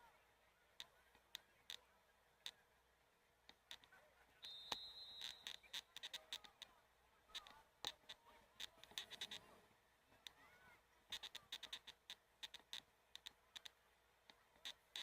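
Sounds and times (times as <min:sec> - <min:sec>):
referee's whistle: 0:04.4 - 0:05.7
faint clicks and knocks: 0:04.7 - 0:09.5, 0:11.1 - 0:15.0.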